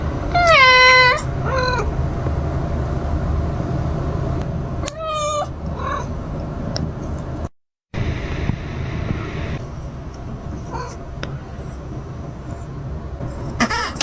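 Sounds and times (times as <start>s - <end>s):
steady low hum: 0.0s - 14.0s
cat meowing: 0.3s - 1.9s, 4.8s - 6.1s, 13.3s - 14.0s.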